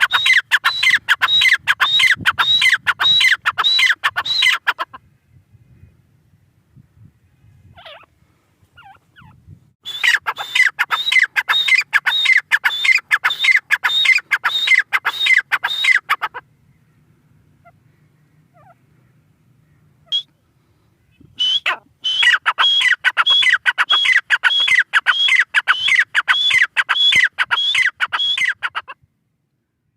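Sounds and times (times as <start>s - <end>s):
francolin calling: 0.0s - 5.1s, 8.8s - 29.0s.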